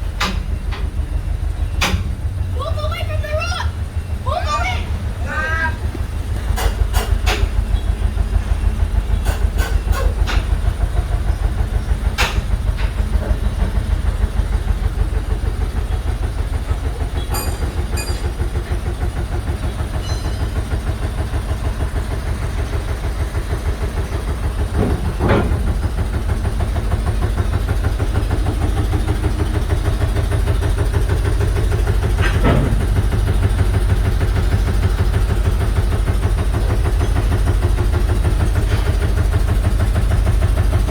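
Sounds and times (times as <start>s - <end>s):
heavy engine idling: 0.0s - 40.9s
loud knocks: 24.7s - 25.9s.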